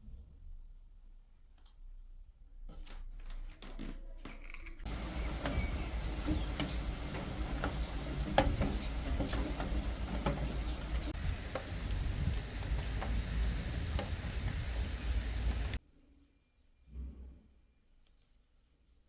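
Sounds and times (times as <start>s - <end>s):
drips tapping on surface: 4.9s - 15.8s
light clicks and knocks: 4.9s - 15.8s
steady rain: 4.9s - 15.8s.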